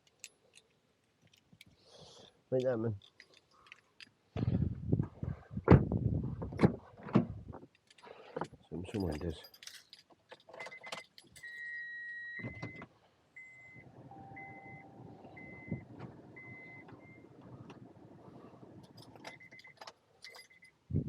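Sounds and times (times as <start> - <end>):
keys jangling: 8.9 - 11.7, 18.8 - 20.8
car warning chime beeping: 13.4 - 17.3
car engine rumbling: 13.8 - 19.5.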